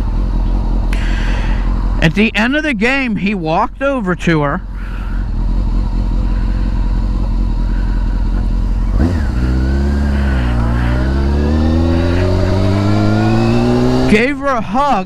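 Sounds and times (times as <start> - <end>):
motorcycle engine accelerating: 4.6 - 15.0
rushing wind: 5.2 - 14.8.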